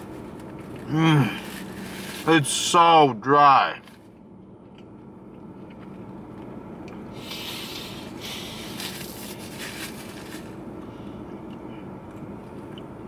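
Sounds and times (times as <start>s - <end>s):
low hum inside a car: 0.0s - 13.0s
person chewing crunchy food: 4.6s - 10.2s.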